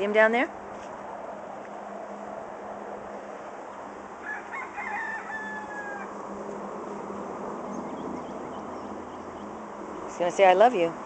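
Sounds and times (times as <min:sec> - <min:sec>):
small birds chirping: 0:06.8 - 0:11.0.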